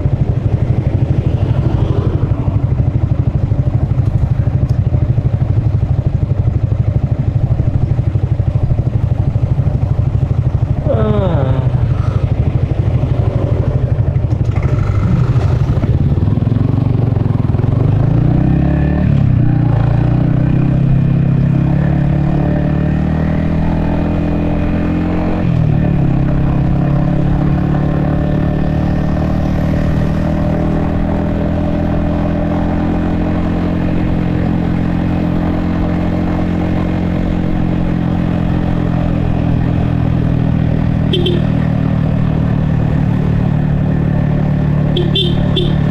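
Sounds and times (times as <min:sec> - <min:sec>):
motorcycle engine pulling away: 0:10.2 - 0:45.9.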